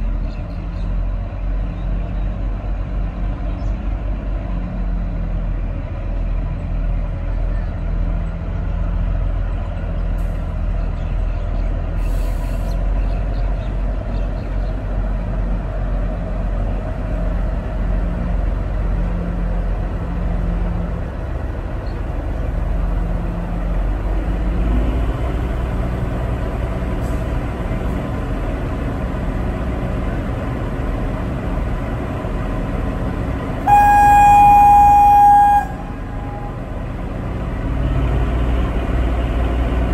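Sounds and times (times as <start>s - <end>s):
diesel train rumbling: 0.0s - 39.9s
train horn blast: 33.6s - 36.9s.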